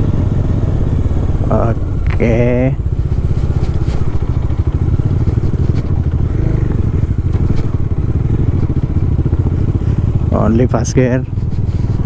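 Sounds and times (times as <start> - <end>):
motorcycle engine at low revs: 0.0 - 12.0
knocks and rattles: 1.9 - 10.4.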